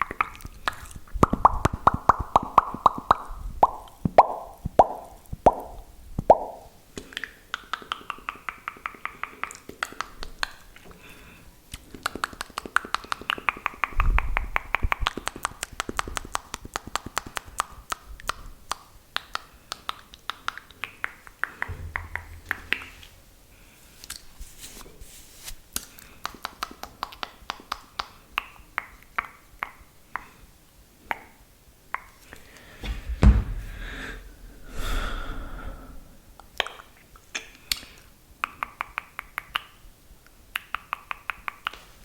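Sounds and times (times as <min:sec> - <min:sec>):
brief low rumble: 0:21.7 - 0:23.5
wet mouth clicks and smacks: 0:36.4 - 0:39.8.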